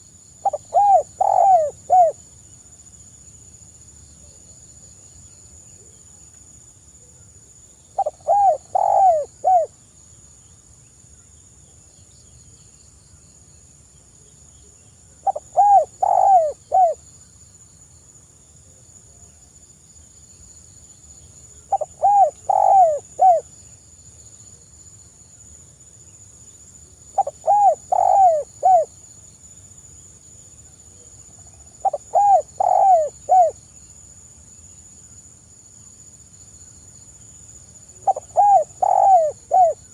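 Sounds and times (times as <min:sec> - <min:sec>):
dove cooing: 0:00.4 - 0:02.2, 0:08.0 - 0:09.7, 0:15.2 - 0:17.0, 0:21.7 - 0:23.5, 0:27.2 - 0:28.9, 0:31.8 - 0:33.6, 0:38.0 - 0:39.9.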